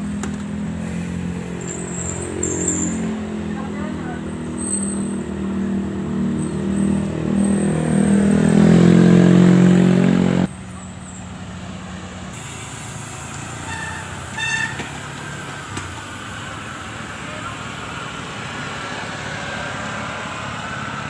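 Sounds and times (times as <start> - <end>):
road and wind noise: 0.0 - 21.0
vehicle engine speeding up: 0.7 - 10.5.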